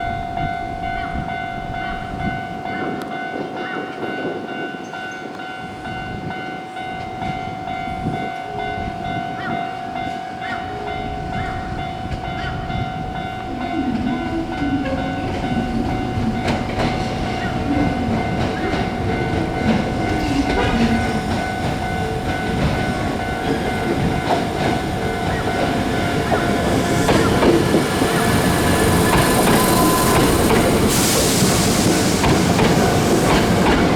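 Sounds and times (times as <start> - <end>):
train rail noise: 0.0 - 33.9
high-pitched tones: 10.6 - 32.0.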